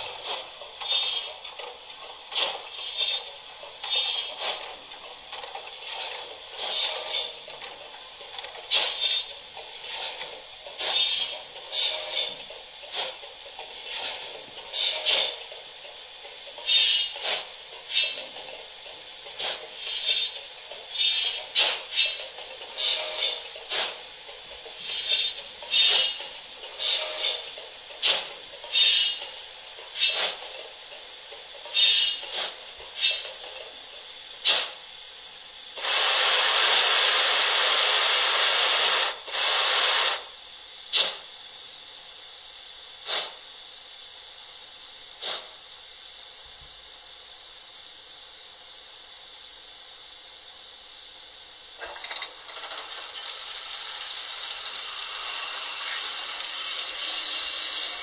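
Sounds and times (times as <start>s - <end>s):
steam hiss: 5.8s - 7.5s, 8.6s - 15.5s, 19.0s - 29.2s, 34.4s - 34.9s, 35.7s - 40.3s, 40.9s - 41.3s, 43.0s - 43.4s, 45.2s - 45.6s, 52.9s - 58.0s.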